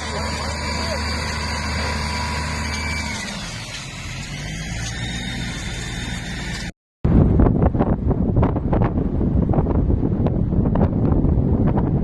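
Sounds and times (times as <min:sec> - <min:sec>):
vehicle engine running: 0:00.0 - 0:06.7
wind buffeting microphone: 0:07.0 - 0:12.0.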